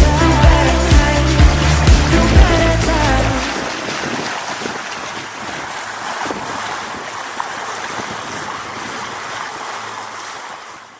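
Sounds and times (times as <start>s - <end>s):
sea water splashing around boat: 0.0s - 10.9s
wind on microphone: 0.6s - 9.5s.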